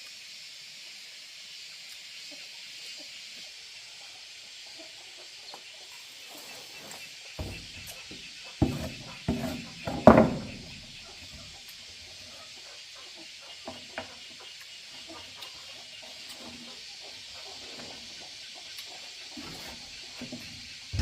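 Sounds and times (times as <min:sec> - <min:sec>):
faint scattered ticks: 0:00.0 - 0:09.8, 0:10.4 - 0:21.0
steady hiss: 0:00.0 - 0:21.0
sudden knocks and clatters: 0:08.6 - 0:10.8.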